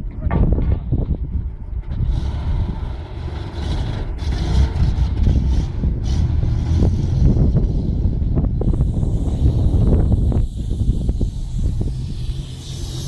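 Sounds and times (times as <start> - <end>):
rushing hiss: 8.6 - 13.0.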